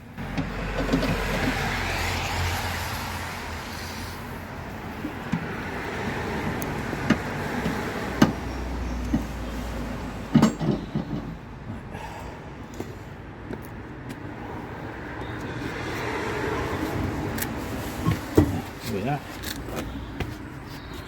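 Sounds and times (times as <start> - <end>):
vehicle passing by: 0.2 - 10.3, 14.3 - 19.2.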